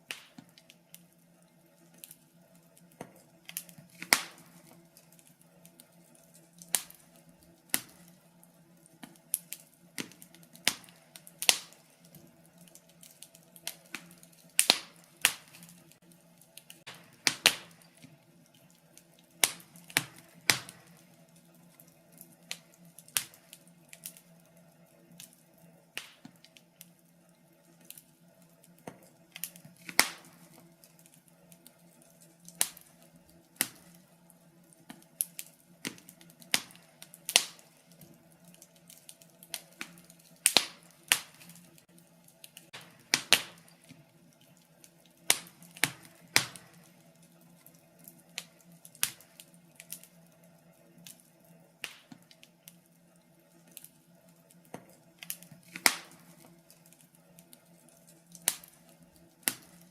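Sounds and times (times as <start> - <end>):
fire pops: 0.0 - 59.9
wood fire crackling: 0.0 - 59.9.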